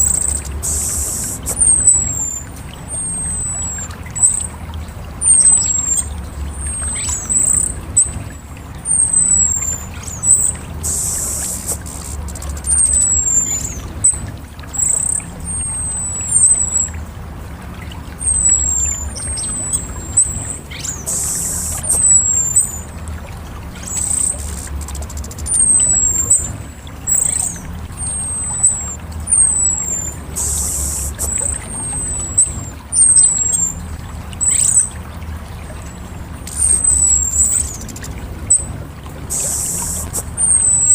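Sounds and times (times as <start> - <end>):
thrush singing high whistled notes: 0.0 - 4.5, 8.9 - 14.2, 18.2 - 22.9, 23.8 - 33.8, 36.5 - 40.9
brief hissing bursts: 0.6 - 1.7, 10.8 - 12.5, 21.0 - 22.0, 30.4 - 31.5, 39.3 - 40.3.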